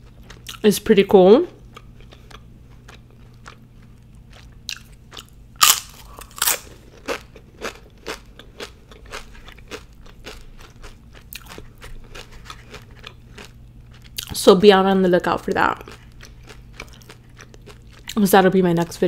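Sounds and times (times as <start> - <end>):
chewing: 1.7 - 14.3, 15.8 - 18.2
tortilla chips crunching: 1.9 - 14.4.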